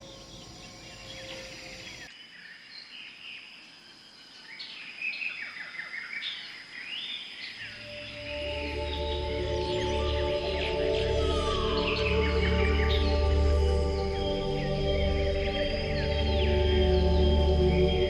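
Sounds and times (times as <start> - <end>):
birds chirping and yelping: 0.0 - 2.1
soft music with low tones: 7.8 - 18.0.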